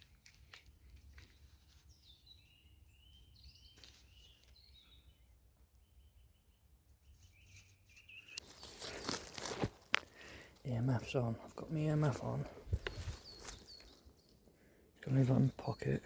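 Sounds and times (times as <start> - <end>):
bird calling: 11.7 - 16.0.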